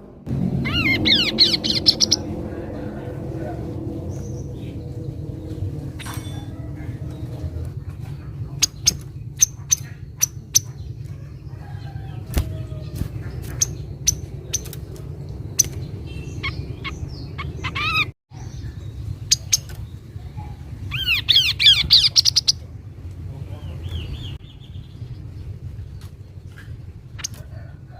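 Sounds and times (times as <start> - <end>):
low background rumble: 0.0 - 27.9
bird calling: 0.6 - 22.8.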